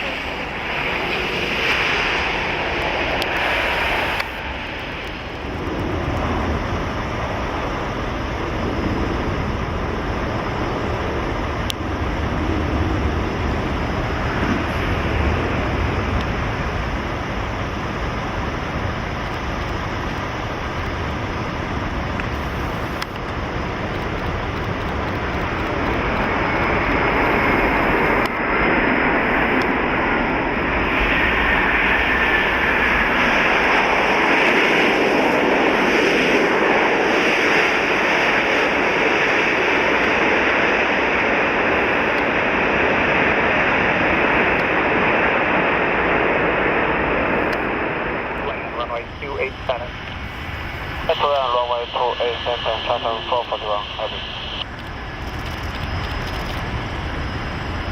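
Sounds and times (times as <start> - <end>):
jet airliner engines: 0.0 - 57.9
wind rumble on microphone: 0.0 - 57.9
faint falling whine: 22.1 - 57.9.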